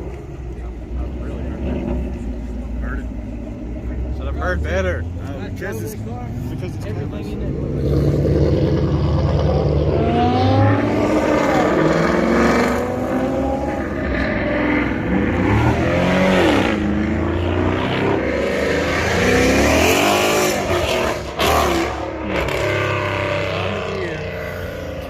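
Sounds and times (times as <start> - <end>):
car engine revving hard: 7.4 - 25.0.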